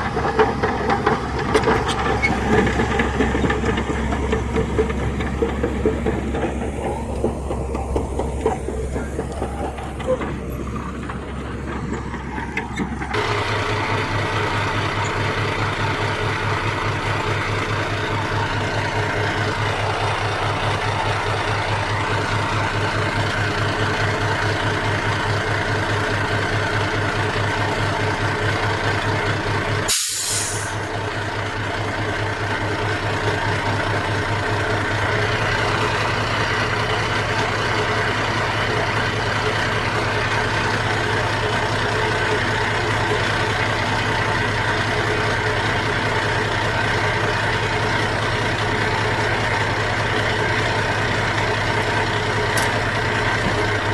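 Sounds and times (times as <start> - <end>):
diesel engine running: 0.0 - 53.9
air brake hiss: 29.9 - 30.9.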